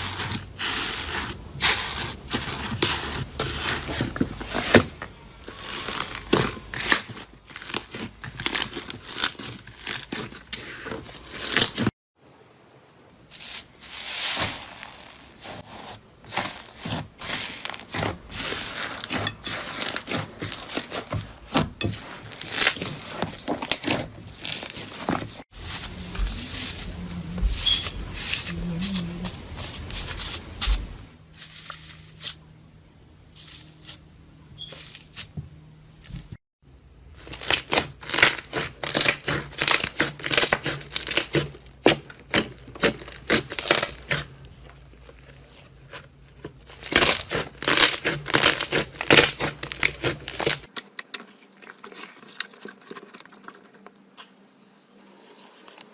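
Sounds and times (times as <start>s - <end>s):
slime crackling and popping: 37.2s - 44.4s, 46.5s - 51.1s.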